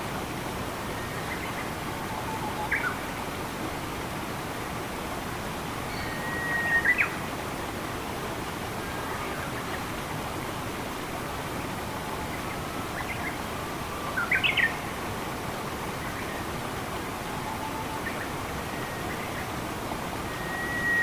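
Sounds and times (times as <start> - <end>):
rushing water hiss: 0.0 - 21.0
birdsong chirps: 20.2 - 21.0.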